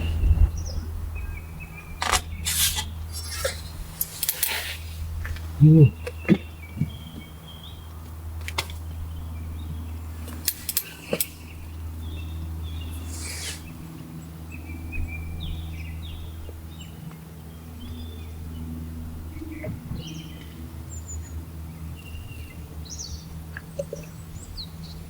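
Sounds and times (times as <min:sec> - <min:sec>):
small birds chirping: 0:00.0 - 0:25.0
steady low hum: 0:00.0 - 0:25.0
sharp clicks: 0:02.0 - 0:02.9
short hiss: 0:02.0 - 0:05.0, 0:13.1 - 0:13.6.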